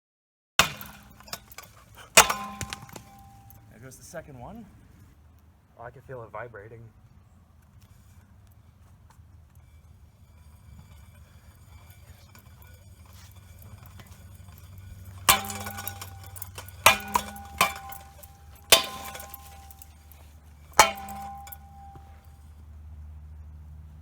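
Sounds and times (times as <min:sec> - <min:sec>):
wobbling fan clanking: 0:00.6 - 0:04.2, 0:09.3 - 0:22.6
ceiling fan motor humming: 0:09.6 - 0:22.4.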